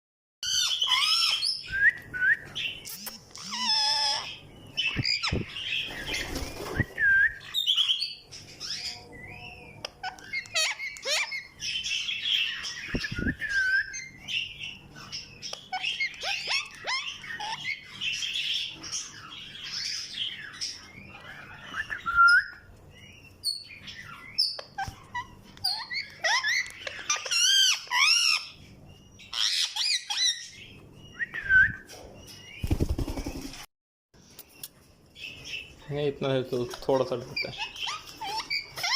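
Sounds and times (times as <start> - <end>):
parrot chirping and squawking: 0.4 - 1.6, 2.6 - 6.2, 7.4 - 21.8, 22.5 - 30.9, 36.9 - 38.9.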